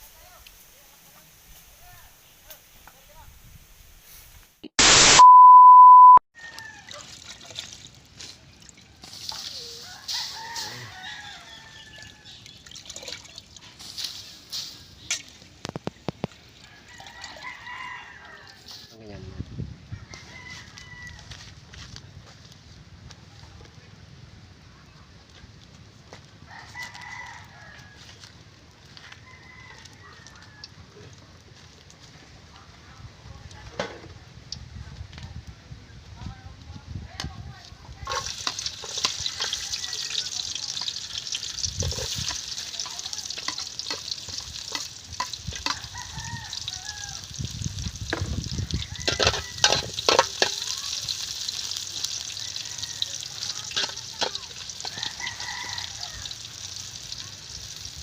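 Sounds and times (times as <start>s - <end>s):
rooster crowing: 6.4s - 7.0s, 9.7s - 12.4s, 16.6s - 18.9s, 19.9s - 21.5s, 26.4s - 28.2s, 29.0s - 30.8s, 45.6s - 47.3s, 48.5s - 50.1s, 52.2s - 53.7s, 54.8s - 56.6s
food sizzling in a pan: 9.0s - 12.6s, 13.4s - 16.6s, 38.0s - 58.0s.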